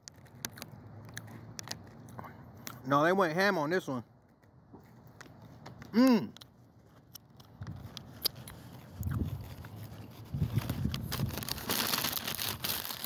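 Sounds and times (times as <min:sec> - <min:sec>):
person chewing and smacking: 0:00.1 - 0:02.8, 0:04.4 - 0:10.1.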